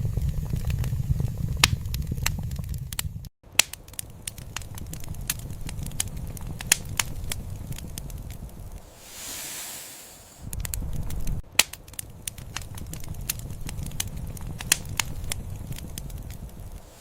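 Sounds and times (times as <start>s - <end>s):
fire popping and snapping: 0.0s - 17.0s
wood fire crackling: 0.0s - 17.0s
soft hiss: 8.8s - 11.0s, 16.7s - 17.0s.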